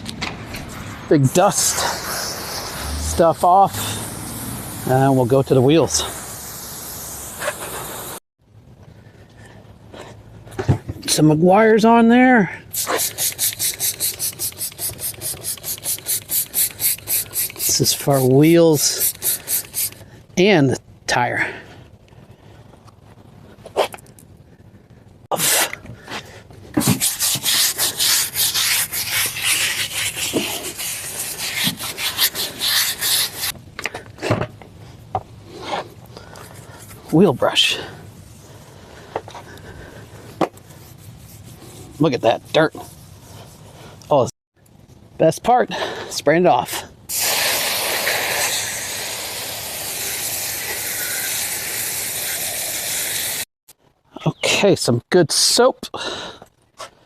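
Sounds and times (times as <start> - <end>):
brush scrubbing a tire: 0.6 - 8.2, 12.7 - 20.0, 26.8 - 33.6, 40.5 - 43.8, 47.1 - 53.4
hose nozzle spraying water: 1.3 - 8.2, 12.7 - 20.0, 26.8 - 33.6, 47.1 - 53.5
short hiss: 1.6 - 5.3, 12.7 - 18.2, 18.8 - 20.0, 47.1 - 53.4.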